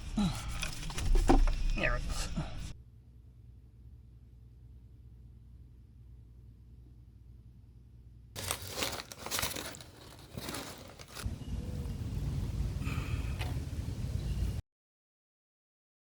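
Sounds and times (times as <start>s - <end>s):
rustling crinkling handling noise: 8.4s - 11.2s
steady low rumble: 10.5s - 14.6s.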